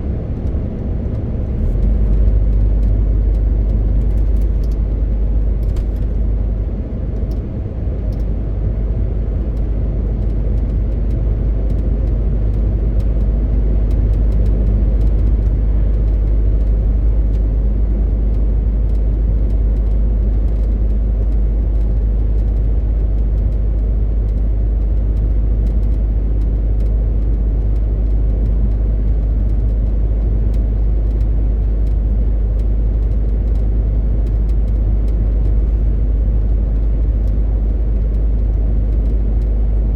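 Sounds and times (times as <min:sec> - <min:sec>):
road noise: 0:00.0 - 0:18.3
truck diesel engine drone: 0:00.0 - 0:18.6.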